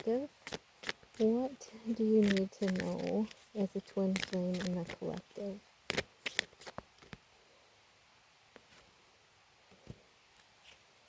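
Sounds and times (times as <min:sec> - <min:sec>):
cards clicking: 0:00.0 - 0:07.2.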